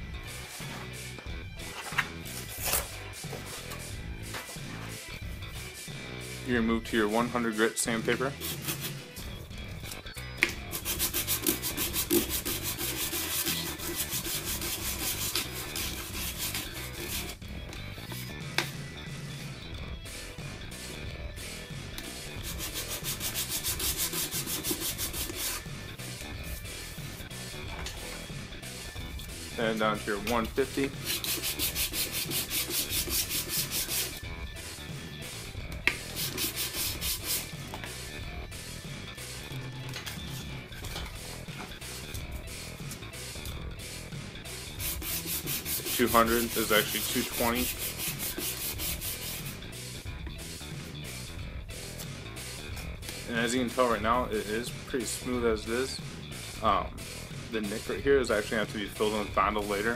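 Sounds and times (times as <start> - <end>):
sandpaper rubbing paper model: 8.3 - 9.1, 10.7 - 17.4, 22.4 - 25.8, 30.2 - 34.2, 35.9 - 37.6, 44.6 - 49.6.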